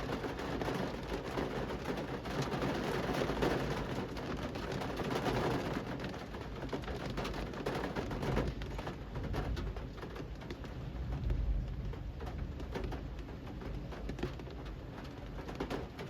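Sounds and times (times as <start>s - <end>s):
rain patter on street: 0.0s - 16.0s
steady low rumble: 10.5s - 14.1s.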